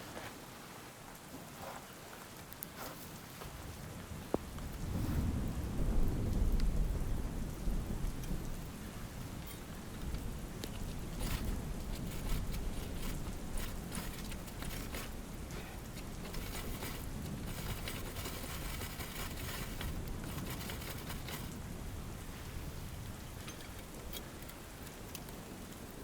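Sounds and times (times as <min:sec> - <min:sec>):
rain falling: 0:03.2 - 0:26.0
close pattering and rustling: 0:09.2 - 0:25.8.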